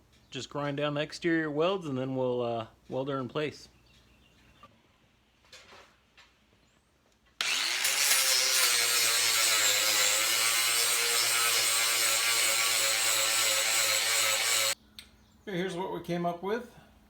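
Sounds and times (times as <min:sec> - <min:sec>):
angle grinder grinding metal: 0:07.4 - 0:14.8.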